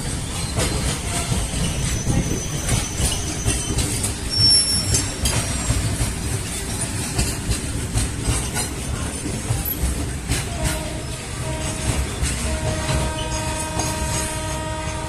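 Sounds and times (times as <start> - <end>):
wheels squealing: 0.0 - 7.4
train coach rumbling: 0.0 - 15.0
train jolt: 0.0 - 15.0
wheels clattering over rail joints: 0.0 - 15.0.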